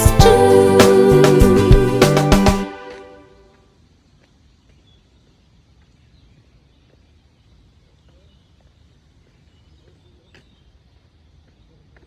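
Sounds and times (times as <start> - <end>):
faint bird chirps: 4.1 - 12.0.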